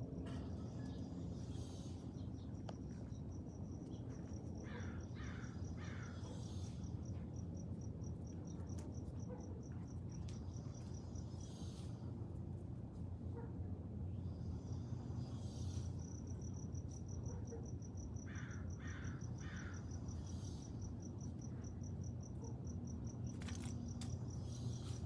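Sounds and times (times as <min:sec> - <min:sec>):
insect chirping: 0:00.6 - 0:09.4, 0:17.8 - 0:25.0.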